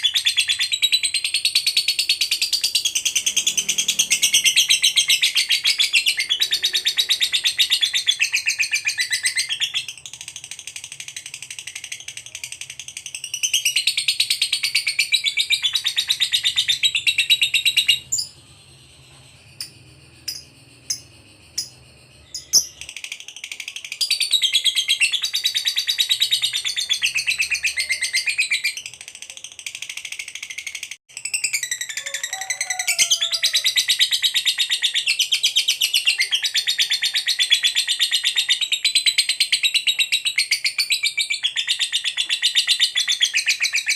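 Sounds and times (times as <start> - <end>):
lovebird chattering trill: 0.0 - 30.5.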